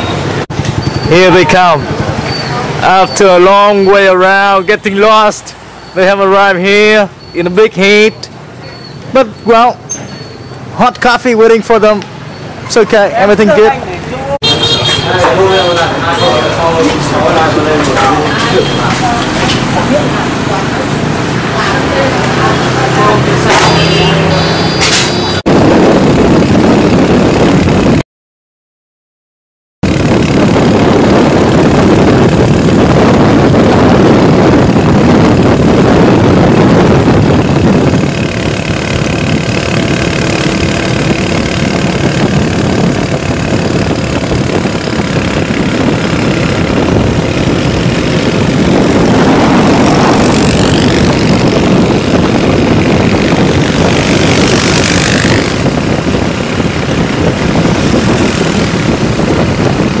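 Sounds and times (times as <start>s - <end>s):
motorcycle engines running: 0.0s - 28.0s, 29.8s - 60.0s
rising whine: 29.8s - 60.0s.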